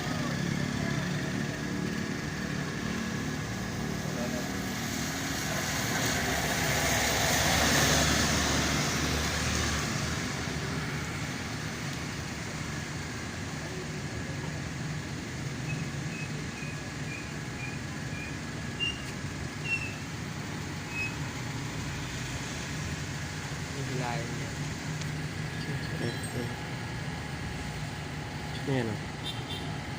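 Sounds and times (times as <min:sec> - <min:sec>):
vehicle passing: 0:00.0 - 0:11.5
roadway hum: 0:00.0 - 0:29.9.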